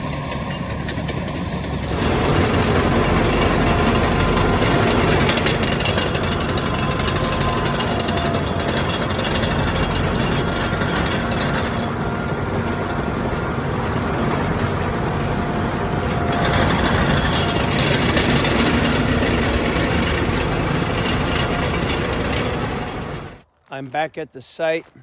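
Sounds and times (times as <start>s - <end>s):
bulldozer diesel engine running: 0.0s - 23.4s.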